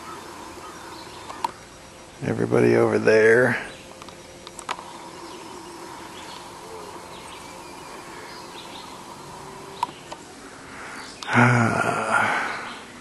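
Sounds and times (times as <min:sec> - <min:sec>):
faint bird calls: 0:00.0 - 0:02.2, 0:03.1 - 0:13.0
loud pitched human vocal sound: 0:11.3 - 0:12.7.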